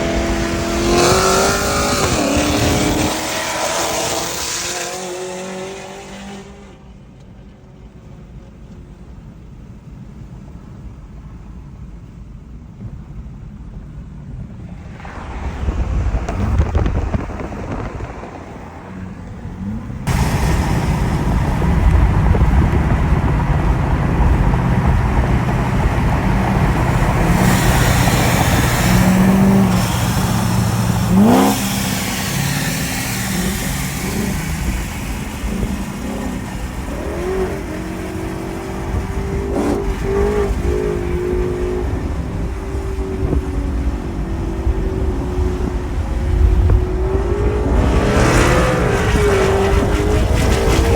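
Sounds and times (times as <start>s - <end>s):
wind noise: 0.0s - 5.0s, 12.7s - 50.9s
car engines racing: 0.0s - 50.9s
short rising sweep: 24.4s - 40.8s.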